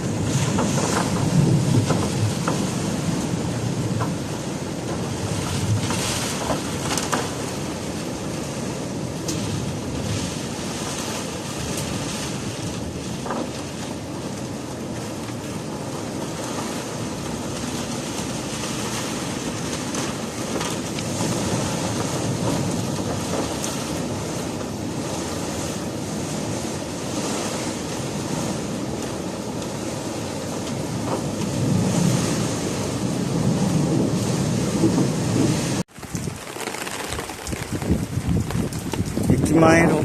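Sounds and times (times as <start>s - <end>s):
wind blowing against microphone: 37.2s - 40.0s.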